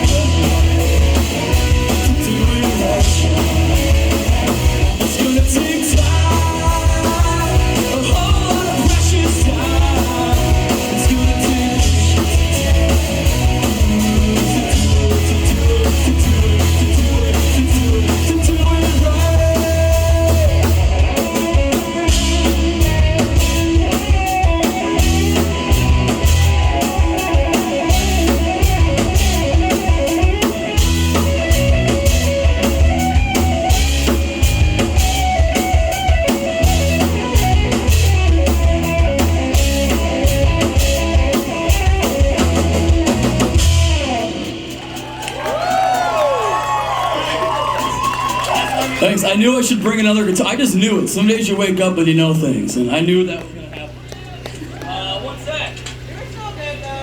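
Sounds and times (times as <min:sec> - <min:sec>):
drum kit: 0:00.0 - 0:51.6
guitars: 0:00.0 - 0:57.0
person singing: 0:01.9 - 0:03.7, 0:05.0 - 0:20.8.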